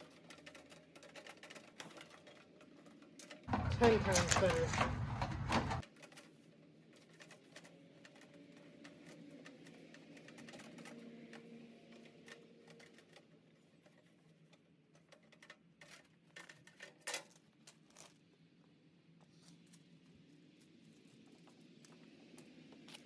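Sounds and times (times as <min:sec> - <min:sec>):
faint clicks and taps: 0:03.5 - 0:05.8.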